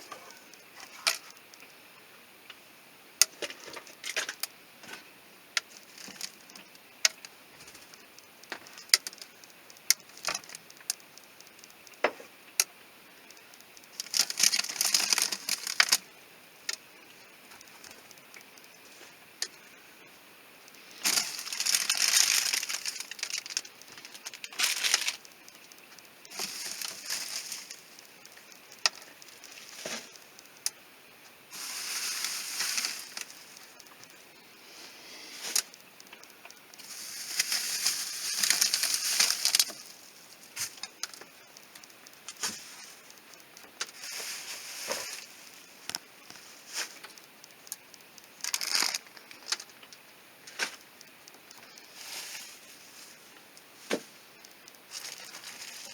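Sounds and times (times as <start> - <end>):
food packages rustling: 5.7 - 11.7, 13.8 - 16.1, 20.7 - 30.8, 31.5 - 34.2, 34.8 - 55.9.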